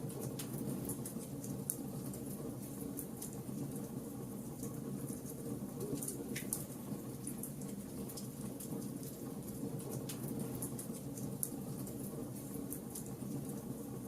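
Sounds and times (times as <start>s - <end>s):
wood crackling and popping: 0.0s - 13.8s.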